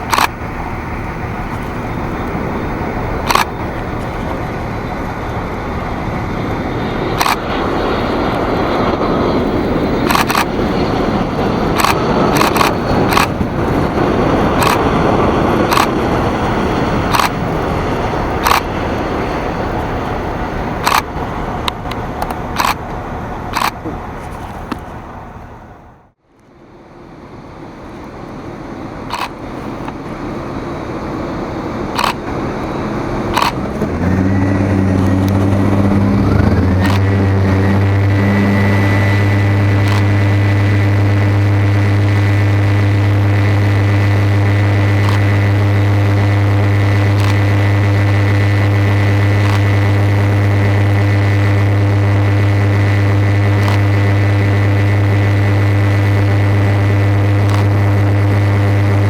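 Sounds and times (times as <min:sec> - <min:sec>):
sharp clicks: 0:00.0 - 0:00.4, 0:03.1 - 0:04.6, 0:07.2 - 0:07.6, 0:09.9 - 0:13.9, 0:14.5 - 0:15.0, 0:15.6 - 0:16.1, 0:17.1 - 0:17.6, 0:18.4 - 0:18.7, 0:20.8 - 0:24.9, 0:29.1 - 0:30.0, 0:31.9 - 0:51.6, 0:52.7 - 0:54.6, 0:55.7 - 0:59.0
heavy engine drone: 0:00.0 - 0:59.0
high whine: 0:00.0 - 0:59.0.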